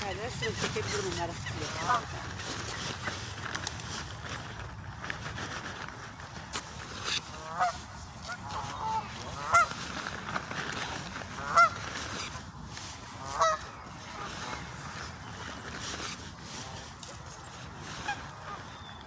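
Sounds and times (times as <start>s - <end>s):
goose honking: 0.2s - 3.1s, 7.2s - 9.8s, 11.4s - 12.3s, 13.2s - 15.0s, 18.0s - 18.6s.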